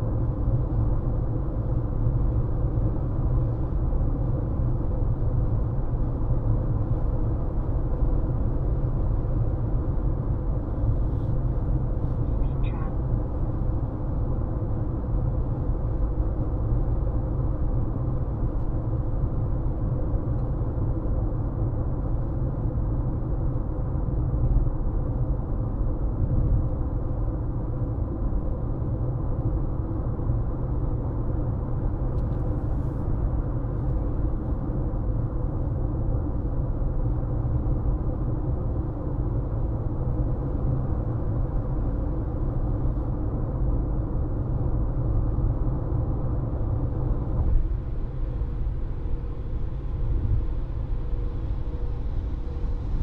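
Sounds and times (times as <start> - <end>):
car tyre and engine rumble: 0.0 - 53.0
faint steady hum: 0.0 - 53.0.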